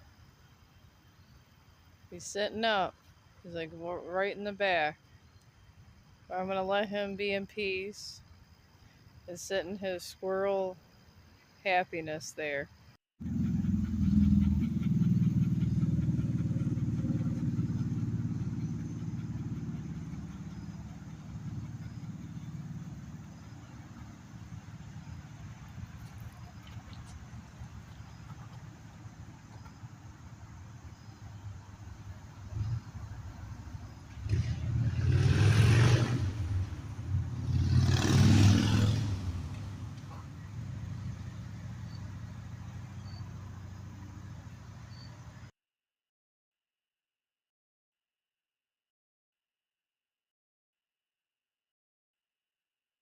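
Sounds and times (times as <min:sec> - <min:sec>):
vehicle engine droning: 0:13.2 - 0:45.5.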